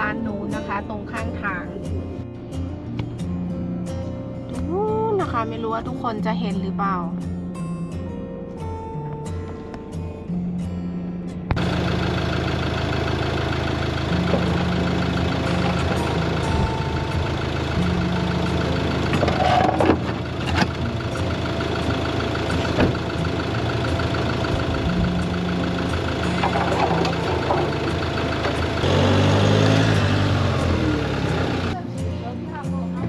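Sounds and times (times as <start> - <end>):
vehicle engine driving: 11.5 - 33.0.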